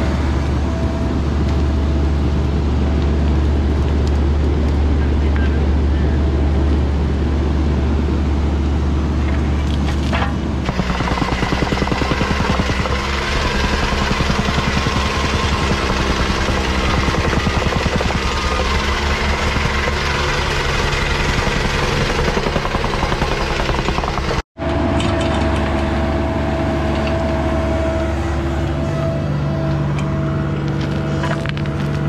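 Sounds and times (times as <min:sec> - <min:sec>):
mini excavator engine running: 0:00.0 - 0:32.0
compactor pounding soil: 0:09.6 - 0:26.1.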